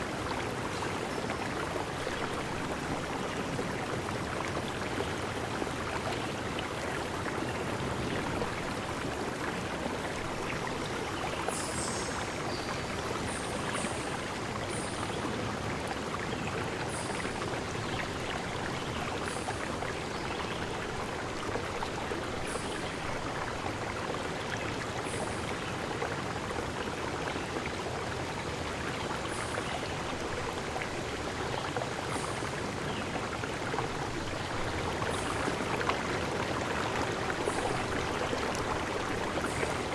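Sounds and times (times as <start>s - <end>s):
stream rushing: 29.9s - 39.9s.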